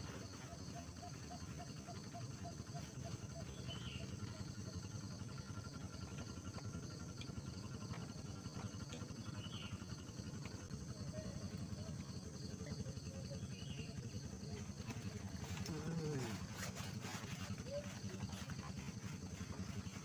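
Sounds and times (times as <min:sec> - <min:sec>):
continuous low rumble: 0:00.0 - 0:20.0
insects chirping: 0:00.0 - 0:20.0
faint short calls: 0:14.8 - 0:18.8.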